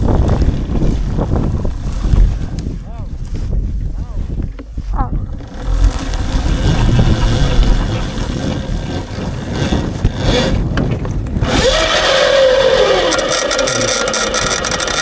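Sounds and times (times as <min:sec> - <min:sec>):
wind rumble on microphone: 0:00.0 - 0:15.0
electric dirt bike motor whining: 0:05.3 - 0:15.0.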